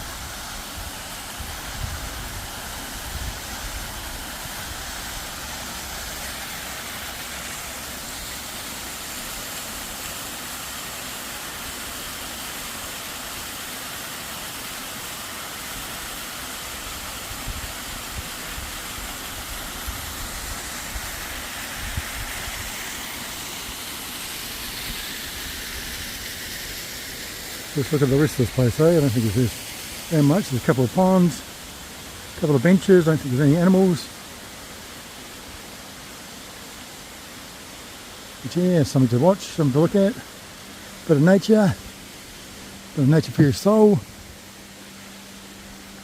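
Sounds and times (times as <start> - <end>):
waterfall rushing: 0.0 - 46.0
wind rumbling on microphone: 1.4 - 4.0.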